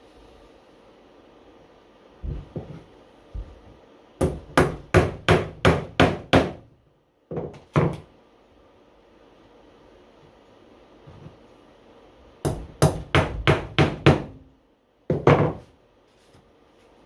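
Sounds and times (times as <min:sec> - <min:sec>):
hammer driving nails into wood: 0:04.2 - 0:06.6, 0:12.5 - 0:14.4.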